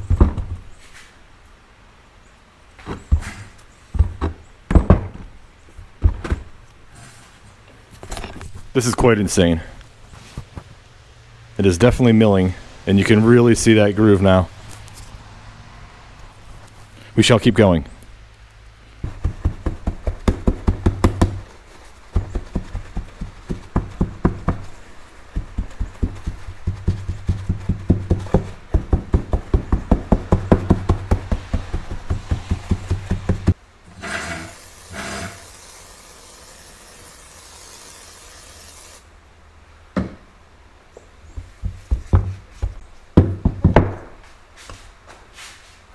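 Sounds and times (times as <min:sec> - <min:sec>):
metal sliding over sandpaper: 0:31.1 - 0:39.1.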